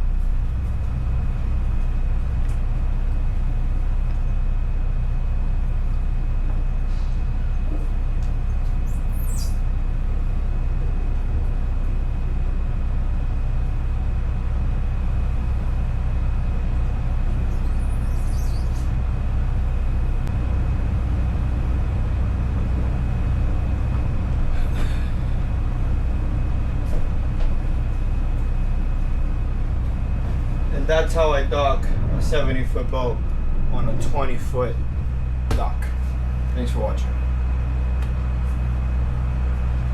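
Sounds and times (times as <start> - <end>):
boat engines idling: 0.0 - 8.8, 9.6 - 39.9.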